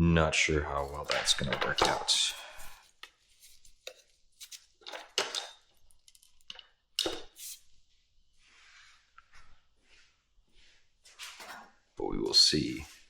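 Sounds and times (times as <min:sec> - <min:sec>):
hand tools clicking and scraping: 0:00.8 - 0:07.6.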